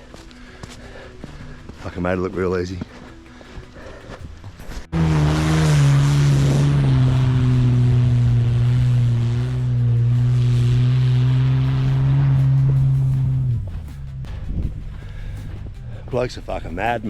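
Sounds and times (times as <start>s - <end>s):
vehicle engine running under load: 4.9s - 15.9s.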